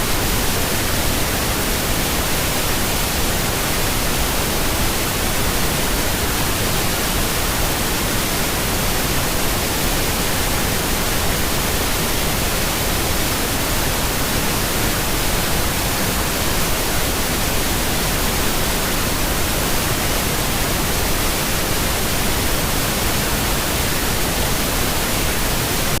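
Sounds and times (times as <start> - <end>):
pink noise hiss: 0.0 - 26.0.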